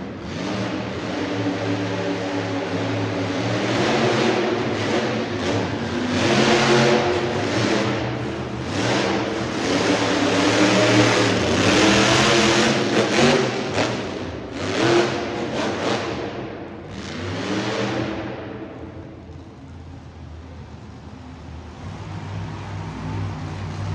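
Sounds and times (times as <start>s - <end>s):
monster truck engine revving: 0.0s - 23.9s.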